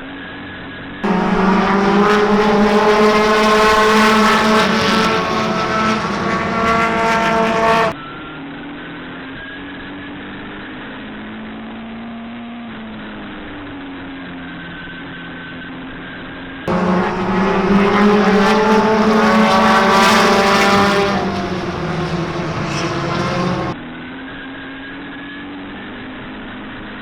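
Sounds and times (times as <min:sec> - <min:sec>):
close engine steady pitch: 0:00.2 - 0:10.2, 0:12.8 - 0:26.9
race car engines: 0:00.4 - 0:08.1, 0:16.7 - 0:23.8.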